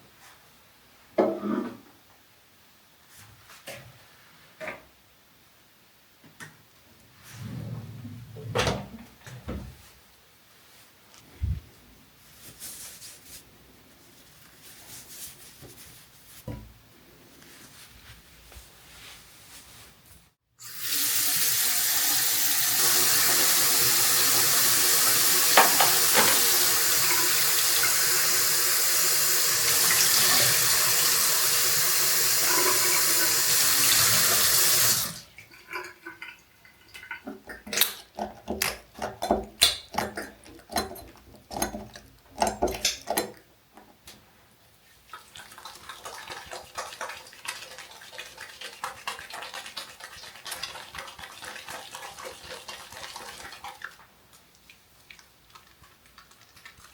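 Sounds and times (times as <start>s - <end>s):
tap running into sink: 25.4s - 27.2s.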